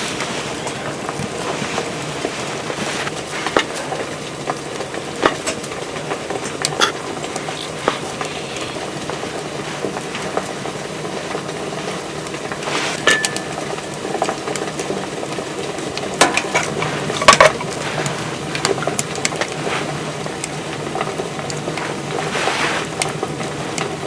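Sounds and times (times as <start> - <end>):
food cooking hiss: 0.0 - 24.0
utensil clinking against pan: 13.0 - 14.3.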